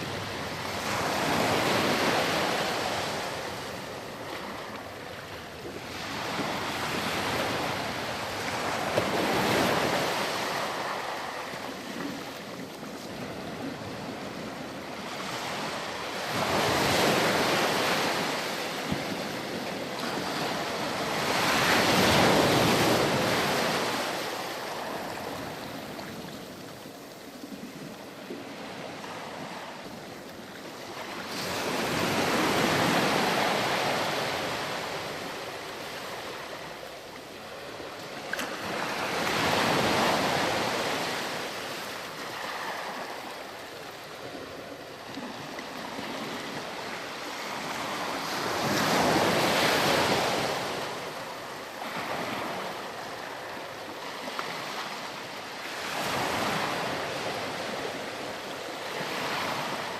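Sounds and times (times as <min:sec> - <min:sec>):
waves surging and washing back: 0:00.0 - 0:59.9.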